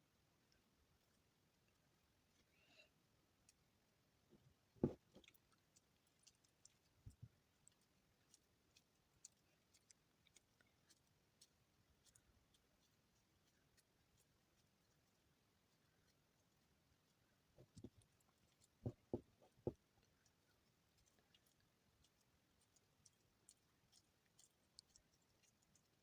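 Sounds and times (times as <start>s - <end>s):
faint crackles and clicks: 4.3s - 26.0s
soft knocks: 4.8s - 5.2s, 18.8s - 19.8s
soap shavings pressed by hand: 4.8s - 26.0s.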